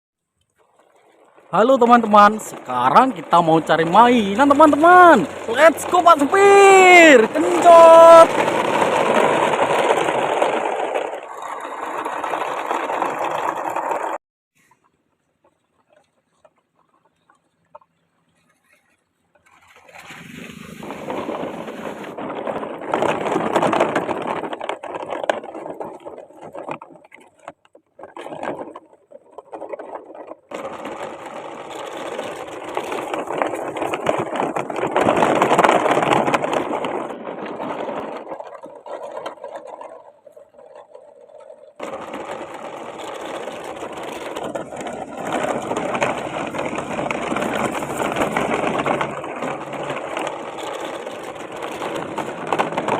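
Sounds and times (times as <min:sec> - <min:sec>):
toy electric motor whirring: 0:41.8 - 0:52.9.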